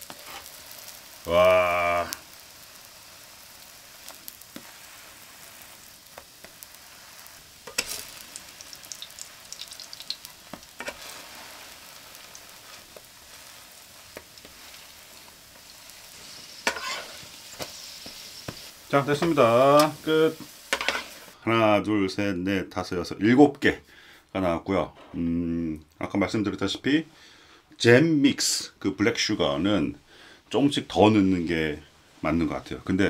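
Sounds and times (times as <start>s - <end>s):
food sizzling in hot oil: 0.0s - 21.4s
metal spatula scraping pan: 0.1s - 0.6s, 5.8s - 8.2s, 10.2s - 12.0s, 14.0s - 20.0s, 20.7s - 21.3s.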